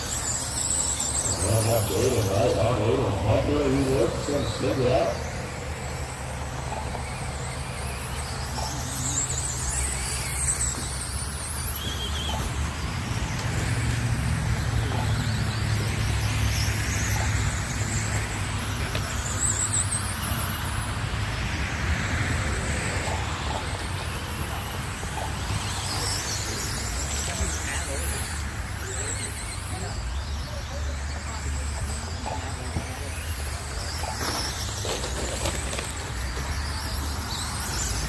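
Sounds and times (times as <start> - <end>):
steady low hum: 0.0 - 11.6
rc car motors whining: 0.0 - 38.0.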